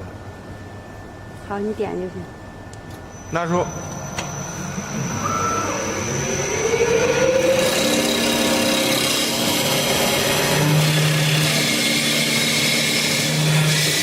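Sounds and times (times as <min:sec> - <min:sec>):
machine hum: 0:00.0 - 0:14.0
lathe motor whine: 0:02.9 - 0:14.0
lathe tools scraping wood: 0:07.4 - 0:14.0.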